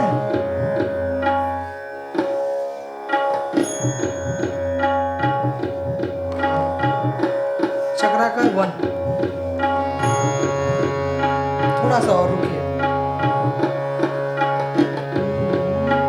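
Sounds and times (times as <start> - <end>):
tabla playing a rhythm: 0.0 - 16.0
continuous drone: 9.5 - 16.0.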